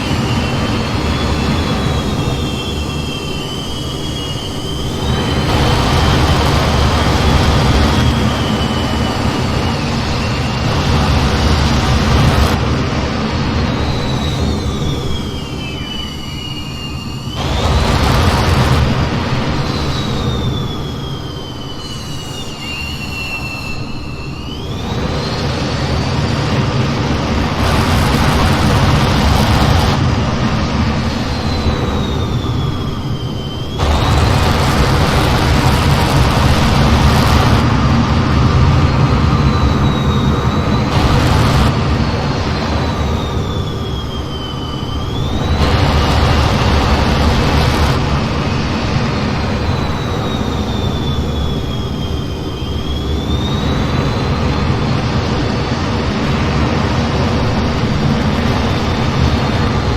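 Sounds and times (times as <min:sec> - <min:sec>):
jet engine rumble: 0:00.0 - 0:59.9
jet engine whine: 0:00.0 - 0:59.9.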